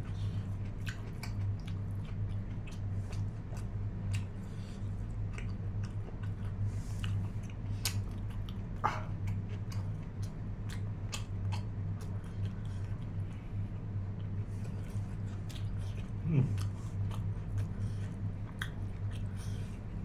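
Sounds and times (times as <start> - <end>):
steady low hum: 0.0 - 20.0
man chewing: 0.1 - 20.0
wet clicks and lip smacks: 7.1 - 8.6, 9.2 - 12.6.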